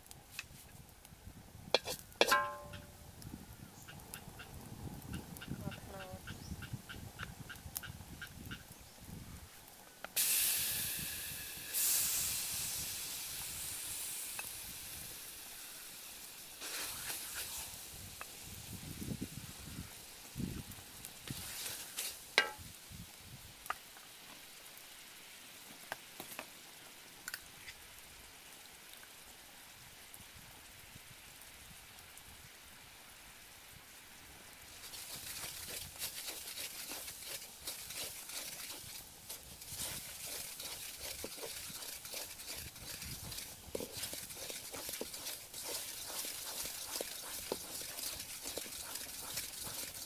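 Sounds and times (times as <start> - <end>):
paste sizzling in a wok: 1.7 - 2.7, 10.2 - 23.1, 34.7 - 50.0
spatula scraping a pan: 1.8 - 2.9, 34.8 - 50.0.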